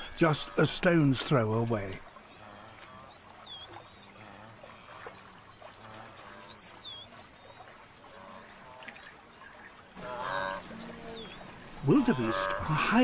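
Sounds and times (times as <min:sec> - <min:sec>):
faint low animal calls: 0:01.8 - 0:13.0.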